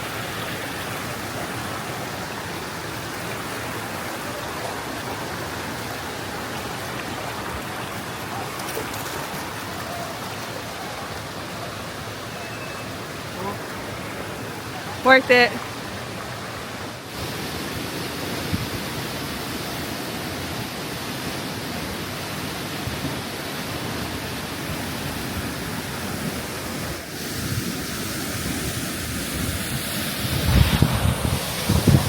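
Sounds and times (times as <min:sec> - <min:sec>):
waterfall rushing: 0:00.0 - 0:32.0
wind buffeting microphone: 0:29.1 - 0:32.0.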